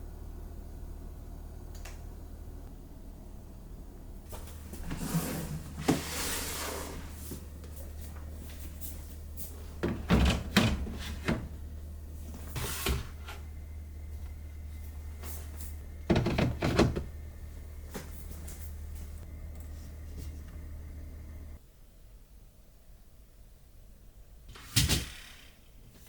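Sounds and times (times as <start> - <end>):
steady low hum: 0.0 - 24.5
knocks and clunks: 9.8 - 11.6, 15.9 - 17.3.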